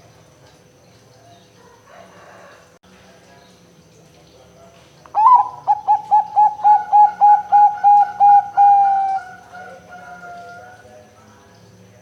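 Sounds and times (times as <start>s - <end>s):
dove cooing: 5.2s - 10.8s.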